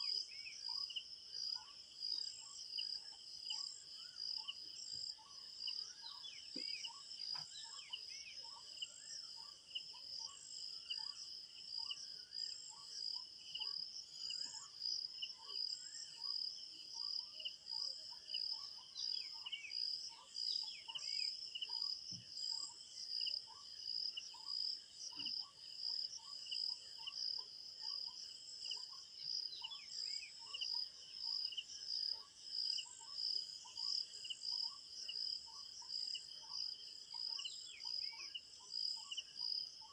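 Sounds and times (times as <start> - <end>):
crickets chirping: 0.0 - 39.9
bird chirps: 3.5 - 10.4.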